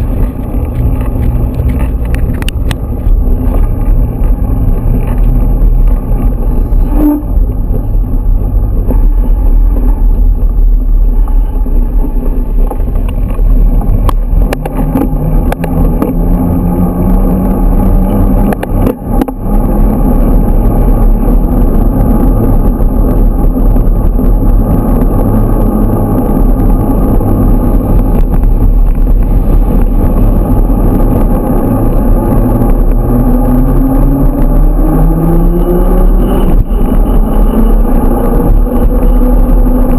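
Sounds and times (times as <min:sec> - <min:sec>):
wind rumble on microphone: 0:00.0 - 0:39.9
motorcycle engine accelerating: 0:12.8 - 0:39.9.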